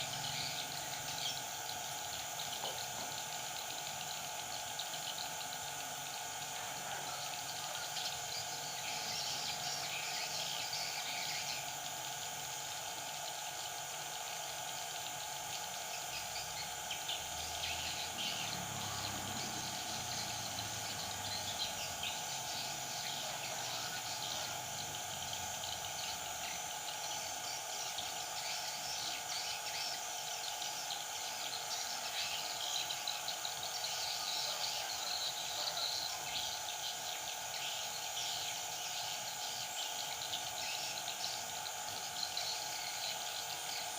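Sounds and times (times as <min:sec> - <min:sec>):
insect-like drone: 0:00.0 - 0:43.9
bulbuls chirping: 0:15.5 - 0:30.0.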